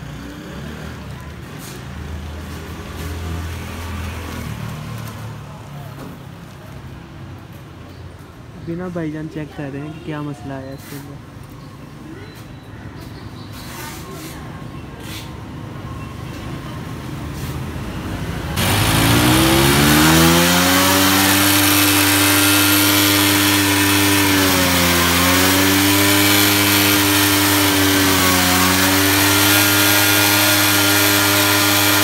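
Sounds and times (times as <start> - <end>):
motorcycle engine starting and revving: 18.4 - 32.0.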